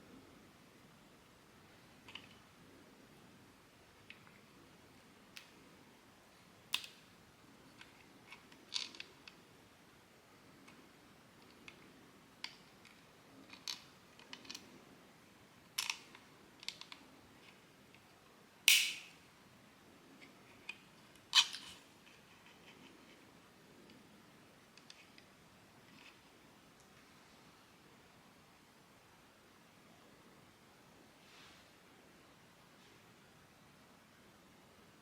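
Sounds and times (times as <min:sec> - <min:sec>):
plastic parts clicking and snapping: 0:06.7 - 0:07.1, 0:12.4 - 0:14.6, 0:15.7 - 0:18.0.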